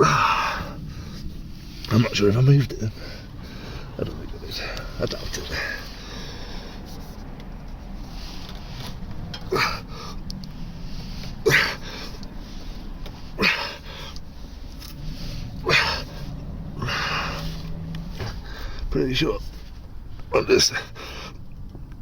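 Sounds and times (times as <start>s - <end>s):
man breathing with effort: 0.0s - 1.9s, 2.9s - 19.0s, 20.2s - 21.6s.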